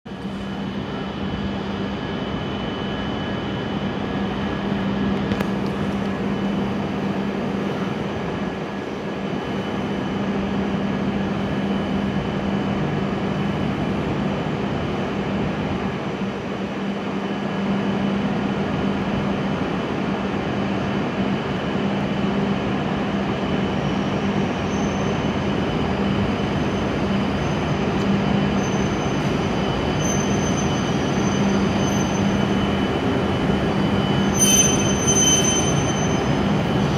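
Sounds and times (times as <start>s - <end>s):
train pulling into platform: 0.1s - 36.9s
high-pitched brake squeals: 24.6s - 25.3s, 26.8s - 32.9s, 33.8s - 36.9s.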